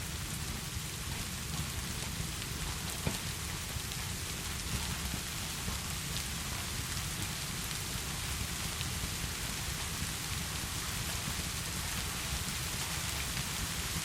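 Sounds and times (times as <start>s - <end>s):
heavy rainfall: 0.0s - 14.0s
ticks of raindrops: 0.1s - 14.0s.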